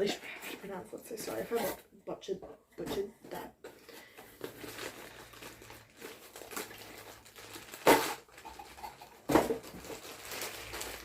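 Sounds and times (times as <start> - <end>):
plastic packaging crinkling: 4.0 - 11.0
sharp plastic crackles: 4.3 - 11.0.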